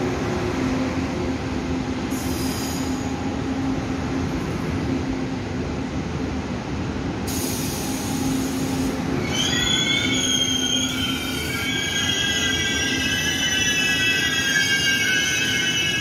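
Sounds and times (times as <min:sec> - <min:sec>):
train rumbling: 0:00.0 - 0:16.0
high metallic squeal: 0:09.2 - 0:16.0.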